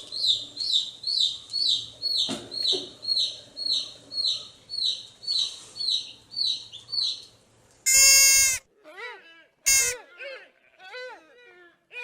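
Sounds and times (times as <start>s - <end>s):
bird chirping: 0.0s - 7.3s
loud bleat: 7.9s - 8.6s, 9.7s - 10.0s.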